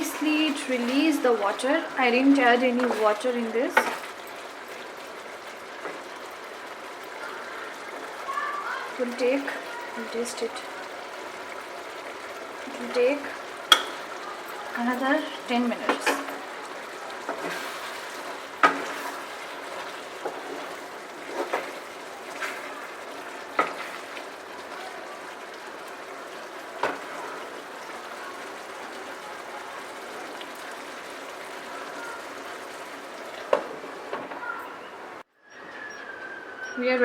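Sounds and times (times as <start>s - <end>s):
spoon knocking against pan: 13.7s - 14.1s.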